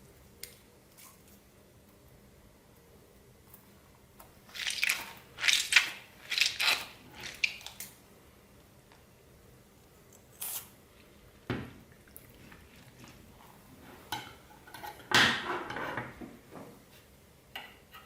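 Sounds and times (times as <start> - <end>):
slime with beads squelching: 4.4 - 7.9.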